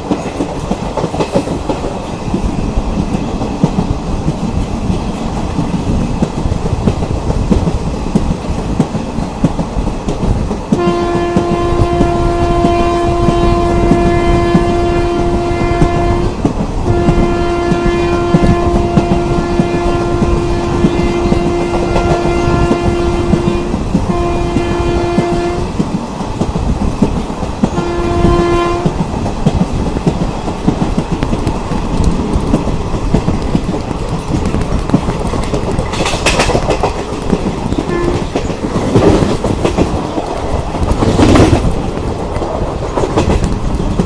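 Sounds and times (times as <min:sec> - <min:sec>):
train wheels clattering on track: 0:00.0 - 0:44.0
train horn: 0:10.7 - 0:25.8, 0:27.7 - 0:29.0, 0:37.8 - 0:38.4.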